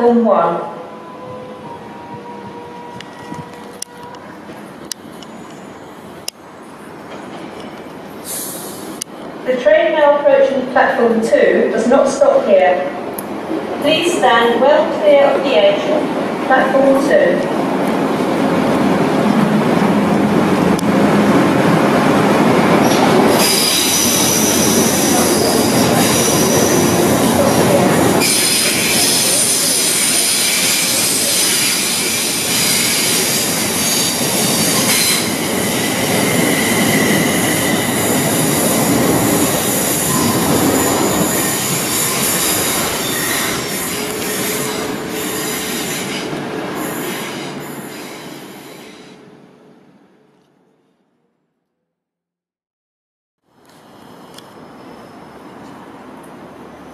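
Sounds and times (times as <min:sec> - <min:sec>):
train wheels rumbling on rail: 0:01.2 - 0:49.3
high-pitched wheel squeal: 0:22.8 - 0:27.0, 0:28.2 - 0:38.7, 0:39.6 - 0:49.2, 0:54.0 - 0:55.6.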